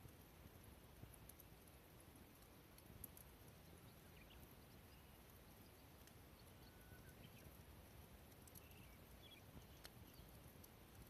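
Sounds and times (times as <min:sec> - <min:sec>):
light ticks: 0:00.0 - 0:11.0
faint high chirps: 0:03.6 - 0:07.6, 0:08.4 - 0:10.5.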